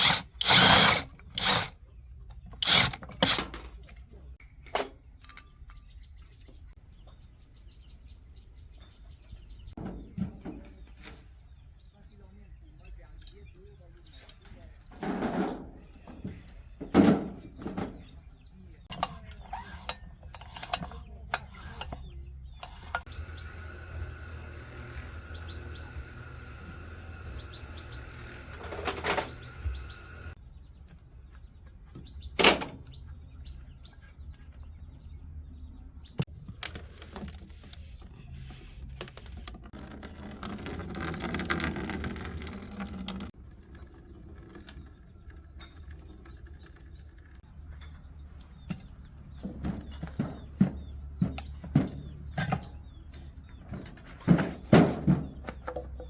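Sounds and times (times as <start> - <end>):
metal parts clicking and knocking: 0.0 - 1.7
rough handling noise: 0.0 - 1.8, 2.4 - 5.5, 14.3 - 30.4, 36.1 - 56.0.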